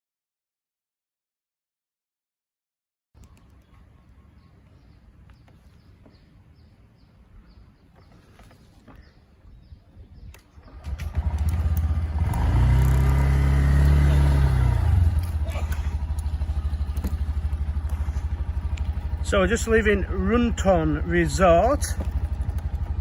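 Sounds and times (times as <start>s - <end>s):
birds chirping: 3.2s - 23.0s
light clicks: 10.3s - 12.5s
motorcycle engine running: 10.6s - 23.0s.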